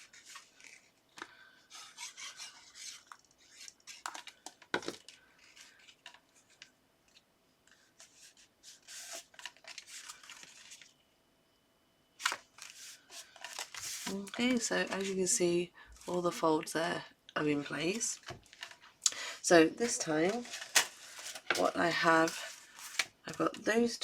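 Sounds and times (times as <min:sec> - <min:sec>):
paper rustling and rubbing: 0:01.7 - 0:04.4, 0:07.8 - 0:10.9, 0:12.2 - 0:15.2, 0:19.8 - 0:23.1.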